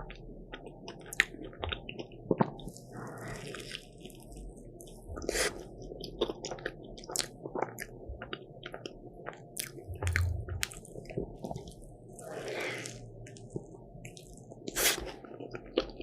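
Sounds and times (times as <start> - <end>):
crunchy chewing: 0.0 - 16.0
dull low thump: 9.9 - 10.7.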